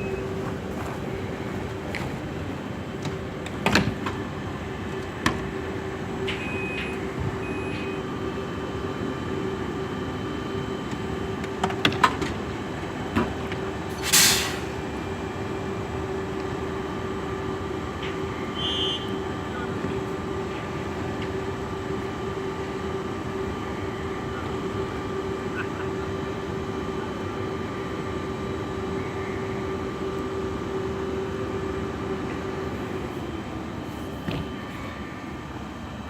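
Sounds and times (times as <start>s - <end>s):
short beeps: 0.0s - 0.4s, 6.4s - 8.0s
electric train humming: 0.0s - 36.0s
loud hiss: 14.0s - 14.7s.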